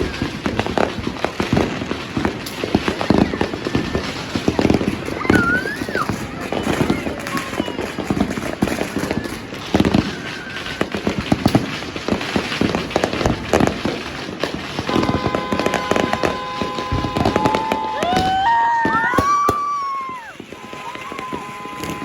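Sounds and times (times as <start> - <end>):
fireworks and firecrackers banging: 0.0 - 22.0
steady high tone: 14.9 - 18.0
rising whistles: 14.9 - 22.0.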